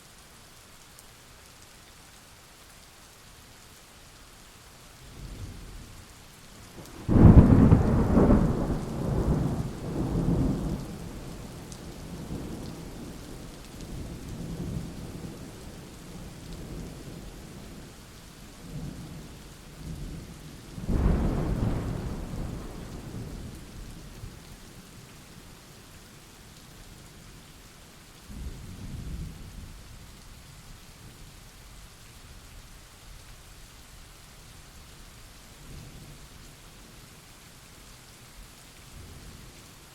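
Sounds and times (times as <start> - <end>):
rain falling: 0.0 - 39.9
thunder rumbling: 6.8 - 12.6, 20.8 - 24.4.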